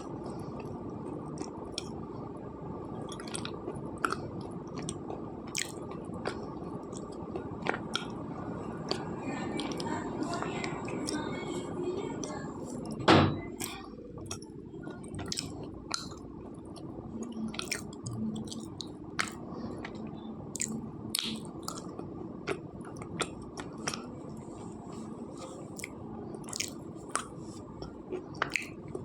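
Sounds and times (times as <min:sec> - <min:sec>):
crisp chewing crunches: 0:25.7 - 0:27.4.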